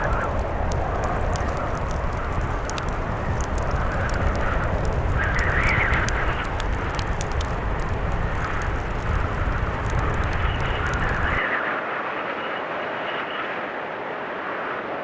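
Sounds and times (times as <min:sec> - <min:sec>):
wood fire crackling: 0:00.0 - 0:11.4
blizzard wind blowing: 0:00.0 - 0:12.3.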